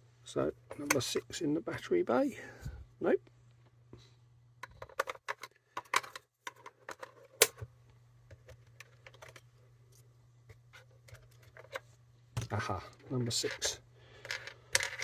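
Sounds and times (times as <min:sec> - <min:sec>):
hands handling plastic radio case: 0:04.6 - 0:07.7, 0:08.3 - 0:09.5, 0:10.5 - 0:15.0.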